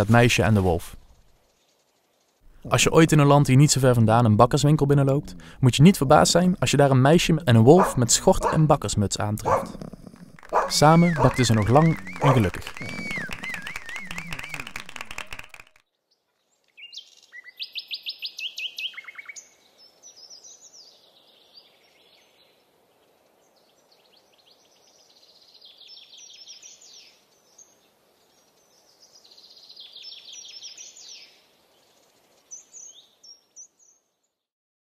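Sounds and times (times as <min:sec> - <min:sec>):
faint outdoor hiss: 0:00.0 - 0:34.4
songbirds chirping and trilling: 0:01.4 - 0:15.6.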